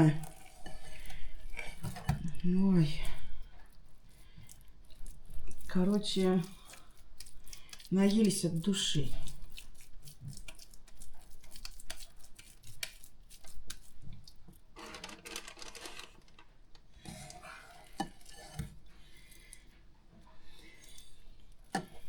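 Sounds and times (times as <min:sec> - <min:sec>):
hands squishing minced meat: 0:00.2 - 0:14.7, 0:17.2 - 0:22.0
rustling: 0:14.8 - 0:16.5.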